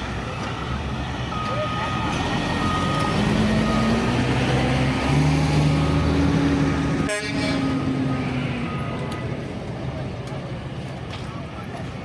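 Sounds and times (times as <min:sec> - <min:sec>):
heavy vehicle engine running: 0:00.0 - 0:12.0
reversing beeper: 0:00.3 - 0:06.4, 0:07.6 - 0:09.2.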